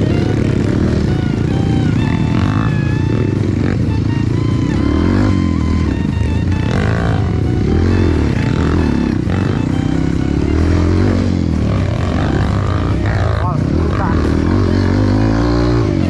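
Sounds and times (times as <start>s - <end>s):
background music: 0.0s - 16.0s
motorcycle engine revving: 0.0s - 16.0s.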